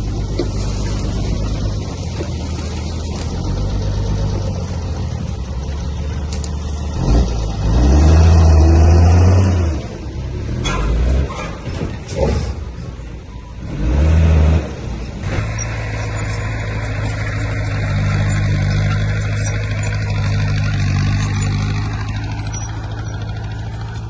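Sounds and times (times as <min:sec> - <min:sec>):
heavy diesel engine running: 0:00.0 - 0:08.5, 0:14.8 - 0:24.0.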